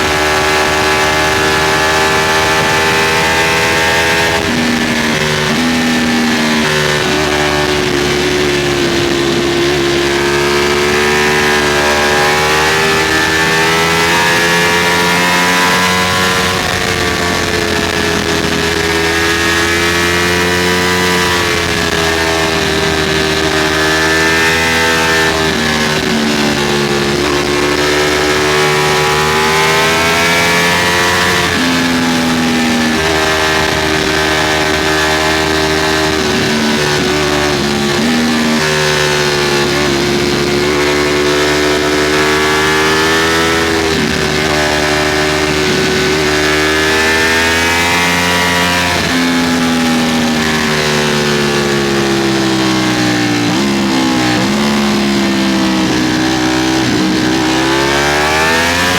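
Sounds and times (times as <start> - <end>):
motorcycle engine running at speed: 0.0 - 58.9
wind noise: 0.0 - 58.9.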